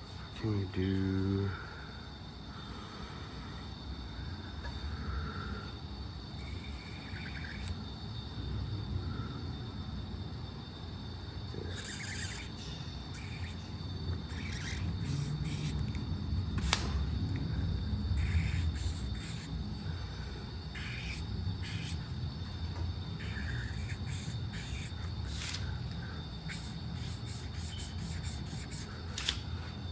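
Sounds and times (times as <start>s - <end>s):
faint high whine: 0.0s - 29.9s
low room hum: 0.0s - 29.9s
pen scratching on paper: 11.8s - 12.5s, 14.3s - 16.0s, 18.2s - 19.6s, 20.7s - 22.2s, 23.2s - 25.7s, 26.5s - 29.4s.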